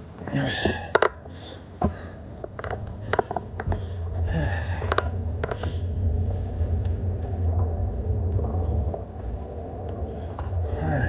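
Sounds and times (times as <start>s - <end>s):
low rumble: 0.0s - 11.0s
bicycle clicks and rattles: 1.9s - 3.9s.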